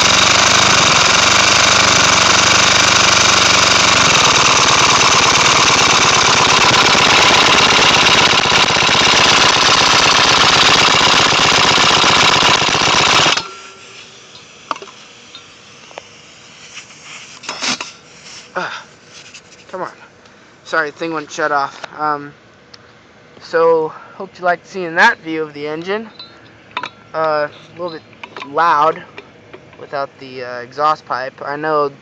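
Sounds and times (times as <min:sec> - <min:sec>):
compressed-air engine air blasts: 0:00.0 - 0:19.7.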